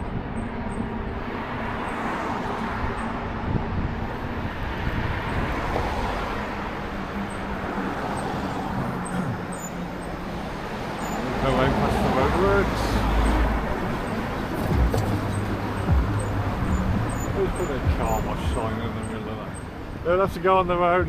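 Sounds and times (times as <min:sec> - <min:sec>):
street traffic noise: 0:00.0 - 0:21.0.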